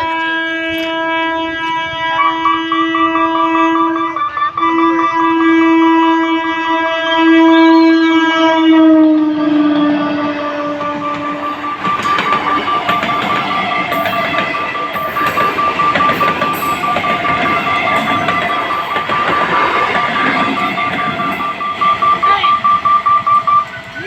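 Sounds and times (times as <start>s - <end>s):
crossing warning bell: 0.0s - 24.0s
train horn: 0.0s - 24.0s
train wheels clattering over rails: 10.7s - 24.0s.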